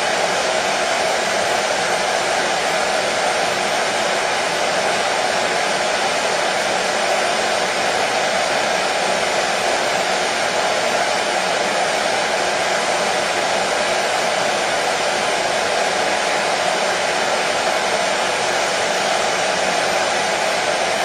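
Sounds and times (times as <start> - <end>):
hair dryer running: 0.0 - 21.0.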